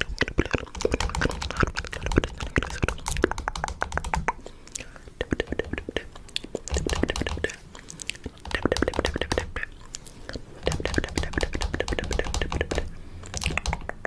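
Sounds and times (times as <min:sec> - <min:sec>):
fingernail tapping and clicking: 0:10.7 - 0:14.0.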